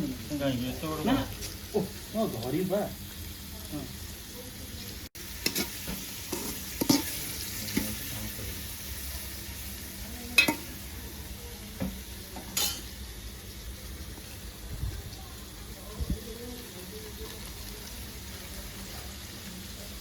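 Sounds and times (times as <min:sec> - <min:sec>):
onion and tomato sizzling: 0:00.0 - 0:20.0
metal spoon scraping a pan: 0:05.4 - 0:08.0, 0:10.4 - 0:10.7, 0:12.4 - 0:12.9.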